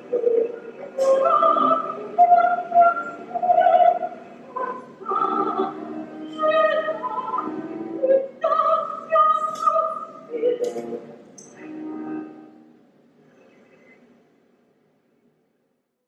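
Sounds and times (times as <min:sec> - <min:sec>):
operatic singing: 0:00.0 - 0:11.1.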